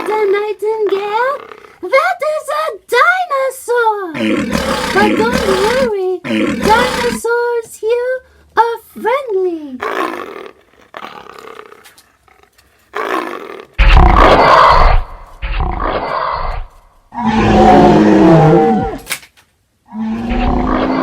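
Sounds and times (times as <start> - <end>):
mock dinosaur roars and growls: 4.2 - 7.2, 13.0 - 19.1, 19.9 - 21.0.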